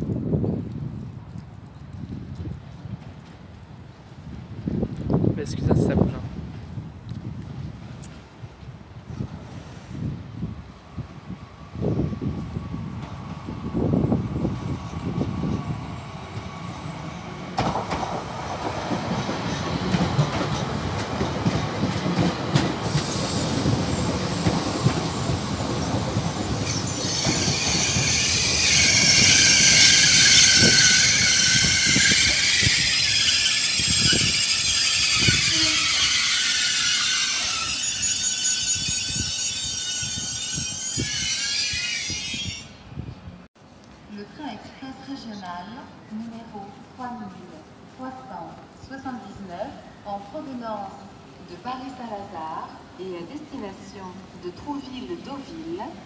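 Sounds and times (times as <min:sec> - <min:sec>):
train rumbling: 0:00.0 - 0:45.1
train knocks: 0:16.3 - 0:32.8
metallic wheel squeal: 0:26.6 - 0:42.8.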